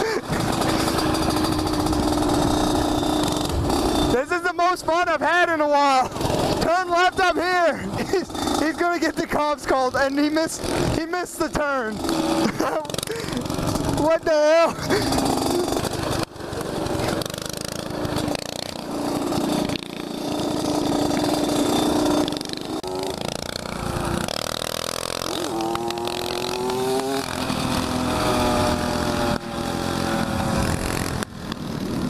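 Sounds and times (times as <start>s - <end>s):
small motorcycle engines revving: 0.0s - 32.0s.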